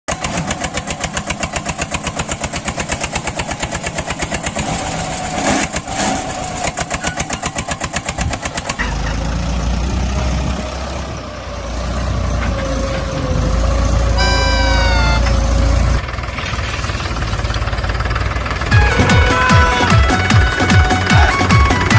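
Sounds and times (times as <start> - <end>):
tractor engine chugging: 0.1 - 21.9
brief falling tone: 14.2 - 15.8.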